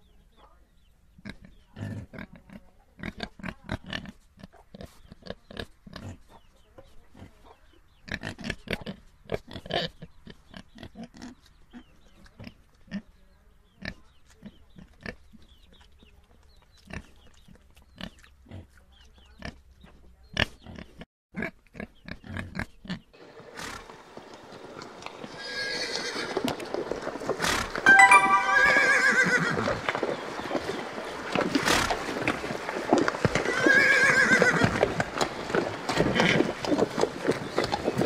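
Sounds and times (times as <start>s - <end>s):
pig rooting and chewing: 1.2s - 27.8s, 29.6s - 38.0s
horses whinnying and neighing: 23.5s - 38.0s.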